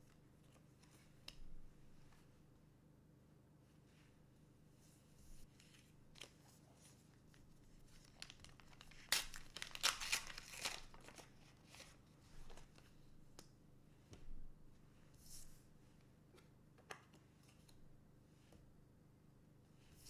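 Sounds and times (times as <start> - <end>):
wrapper tearing and crinkling: 8.0 - 11.9.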